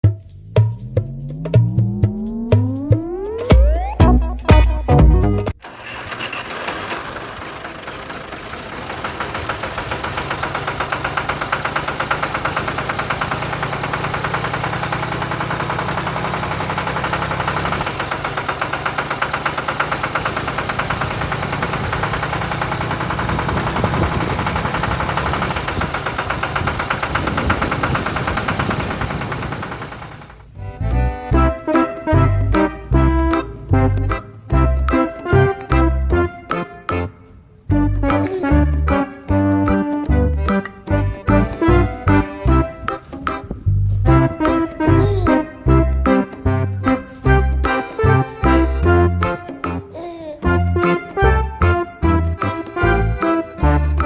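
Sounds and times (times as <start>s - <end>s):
small engine running: 5.6s - 30.5s, 44.1s - 54.0s.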